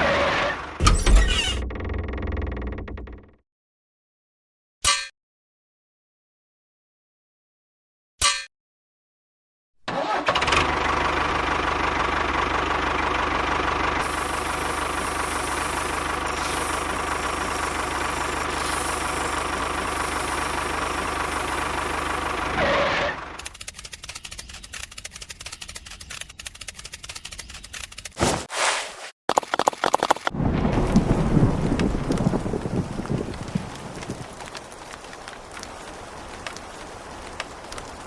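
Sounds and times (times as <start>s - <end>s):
engine running steadily: 10.4s - 23.4s
rapid crackling rattle: 29.3s - 30.3s.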